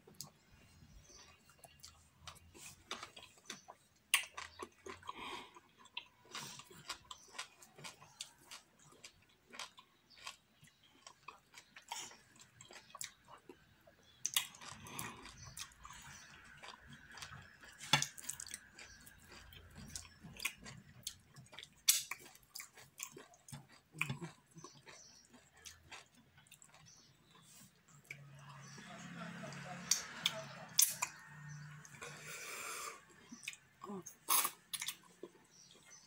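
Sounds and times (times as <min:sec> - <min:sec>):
person chewing with open mouth: 0:01.0 - 0:28.7, 0:29.9 - 0:36.0.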